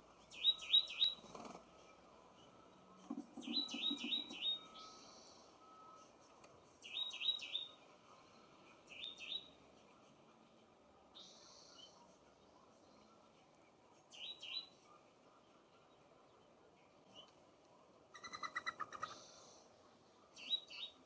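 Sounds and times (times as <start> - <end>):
small bird chirping: 0.3 - 1.5, 3.1 - 5.5, 6.8 - 7.8, 18.1 - 19.6.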